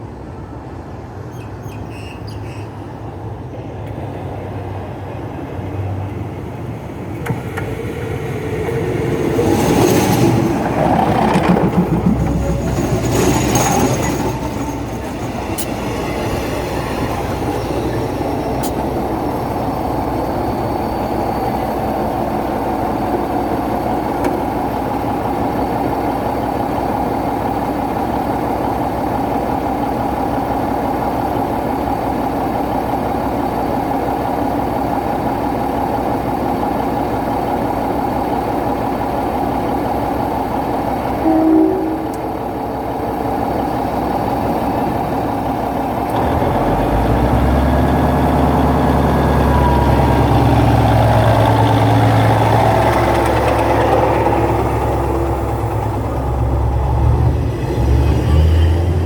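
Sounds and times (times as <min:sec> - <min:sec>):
passenger train passing: 0:00.0 - 0:59.0
train horn toot: 0:41.2 - 0:42.8.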